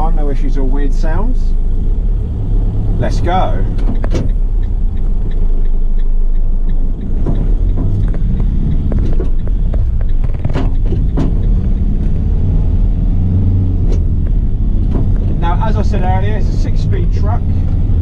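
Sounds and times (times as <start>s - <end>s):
diesel engine accelerating: 0.0s - 18.0s
sharp knocks: 7.0s - 12.2s.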